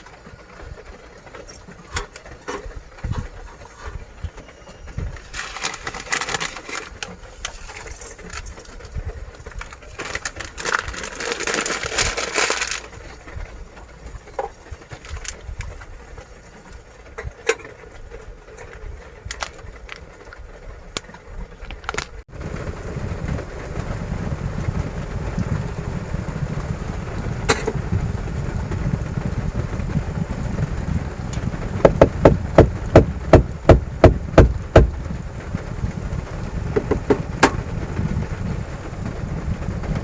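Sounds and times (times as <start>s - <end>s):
heavy rain and wind on vehicle: 0.0s - 40.0s
sharp knocks: 31.8s - 35.0s.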